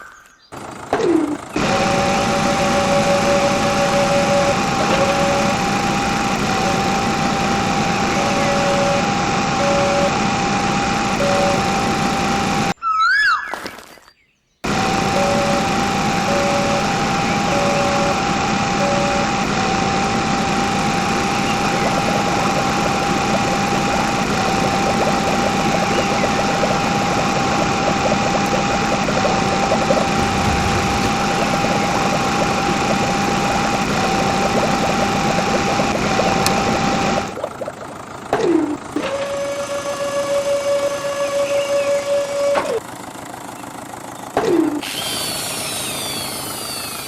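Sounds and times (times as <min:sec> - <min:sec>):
engine running under load: 0:00.5 - 0:12.8, 0:14.6 - 0:47.0
high whine: 0:01.2 - 0:12.8, 0:14.6 - 0:37.6.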